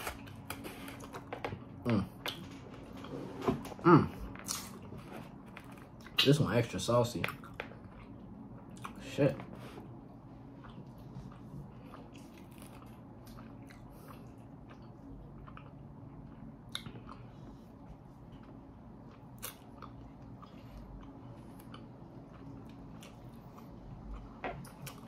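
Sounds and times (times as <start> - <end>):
low steady hum: 0.0 - 25.0
person chewing chicken wings: 7.2 - 25.0.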